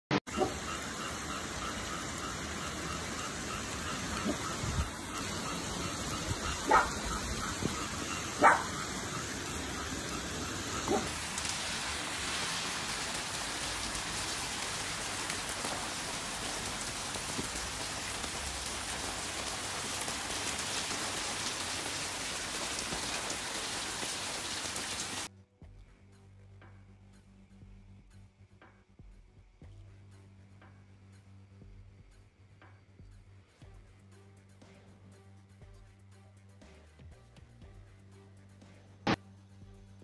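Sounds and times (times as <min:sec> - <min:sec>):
dog barking: 0:00.3 - 0:00.6, 0:04.2 - 0:04.5, 0:06.5 - 0:07.2, 0:08.3 - 0:08.9, 0:10.8 - 0:11.2
heavy rain pouring: 0:00.3 - 0:25.3.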